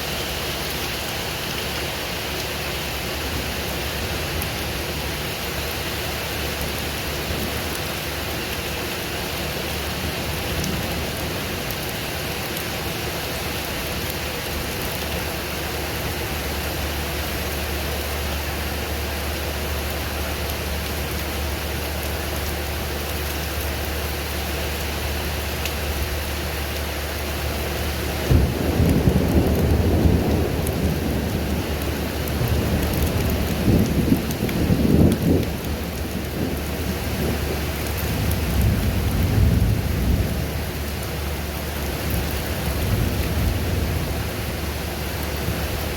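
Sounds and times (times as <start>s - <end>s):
rain falling: 0.0s - 45.9s
thunder rumbling: 6.4s - 20.2s, 27.4s - 45.9s.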